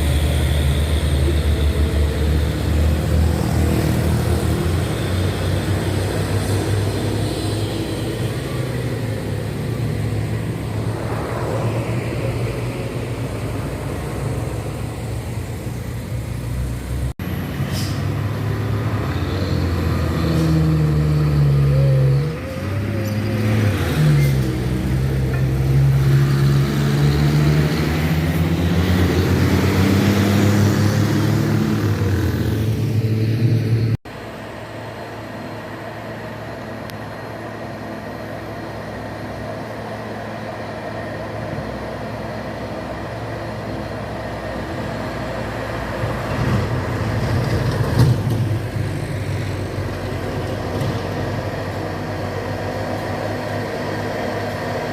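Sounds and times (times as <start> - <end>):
truck diesel engine climbing hill: 0.0 - 54.9.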